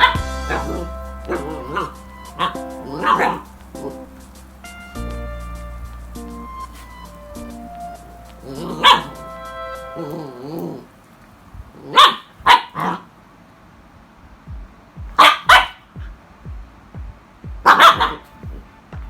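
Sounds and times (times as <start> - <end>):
dog barking: 0.0 - 4.2, 8.4 - 10.9, 11.8 - 13.1, 15.2 - 15.9, 17.6 - 18.3
background music: 0.0 - 10.8, 14.5 - 19.0.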